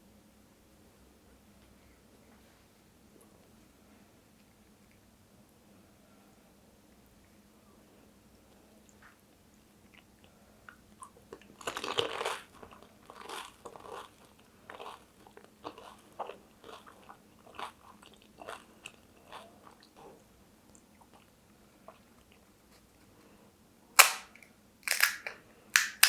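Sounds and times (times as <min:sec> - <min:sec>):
chewing: 0:09.8 - 0:22.6
crisp shell crunching: 0:11.6 - 0:16.0, 0:24.0 - 0:26.0.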